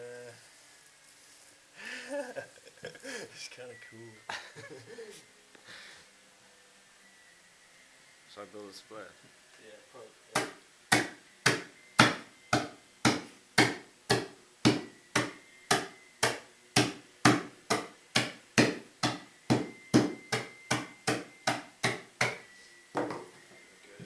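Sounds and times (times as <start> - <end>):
hammer pounding pasta: 10.4 - 22.4.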